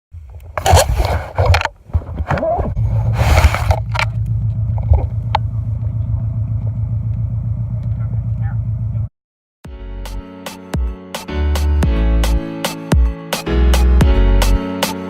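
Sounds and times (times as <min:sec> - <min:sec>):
engine low pulsing rumble: 0:02.4 - 0:09.1.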